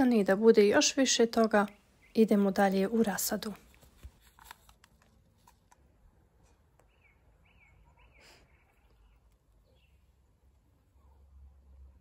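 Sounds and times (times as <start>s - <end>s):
small bird chirping: 6.8s - 10.4s.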